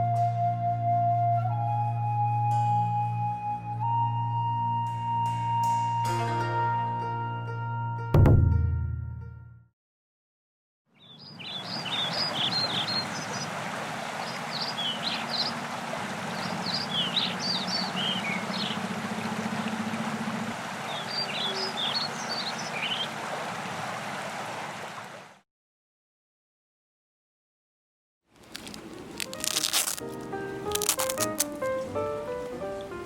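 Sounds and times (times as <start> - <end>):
songbird chirping: 10.9 - 13.6, 14.2 - 15.6, 16.2 - 23.1
stream rushing: 11.5 - 25.4.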